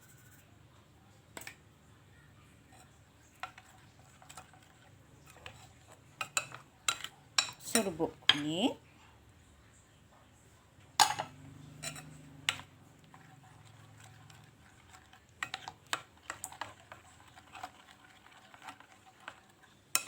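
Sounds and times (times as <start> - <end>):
spoon stirring batter in bowl: 0.4 - 1.8, 2.5 - 9.4, 10.0 - 20.0
spoon clinking against bowl: 6.2 - 8.5, 11.0 - 12.7.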